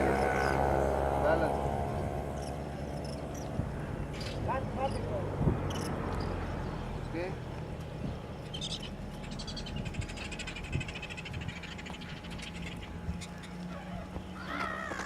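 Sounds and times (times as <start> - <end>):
gulls and terns chattering: 0.0 - 15.0
wavering bird call: 8.4 - 15.0.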